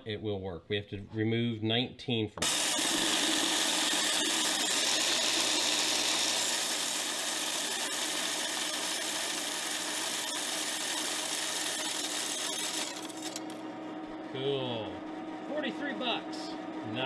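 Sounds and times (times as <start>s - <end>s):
electric coin counter running: 2.4s - 13.6s.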